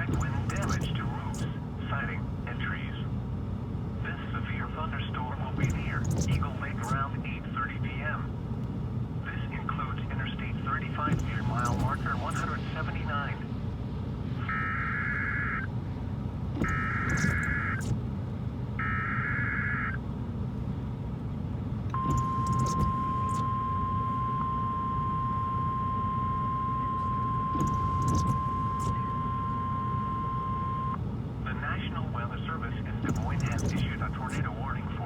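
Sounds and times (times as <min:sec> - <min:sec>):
buzzy data bursts: 0:00.0 - 0:01.5, 0:05.6 - 0:07.1, 0:11.1 - 0:12.9, 0:16.6 - 0:18.0, 0:22.0 - 0:23.6, 0:27.6 - 0:29.1, 0:33.1 - 0:34.5
steady warning alarm tone: 0:00.0 - 0:01.6, 0:05.6 - 0:07.1, 0:10.9 - 0:13.5, 0:14.4 - 0:15.7, 0:16.6 - 0:18.0, 0:18.8 - 0:20.0, 0:21.9 - 0:31.0, 0:33.1 - 0:34.5
vehicle road noise: 0:00.0 - 0:35.0.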